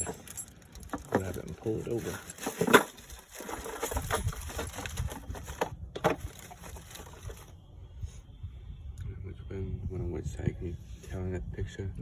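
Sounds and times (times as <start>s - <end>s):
brake parts clinking and rattling: 0.0s - 7.5s.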